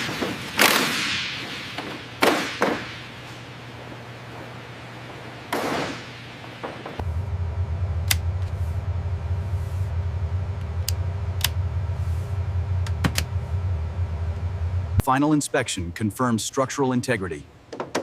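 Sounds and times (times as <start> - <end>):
loud steady low hum: 0.0 - 17.8
sharp clicks: 10.6 - 11.6.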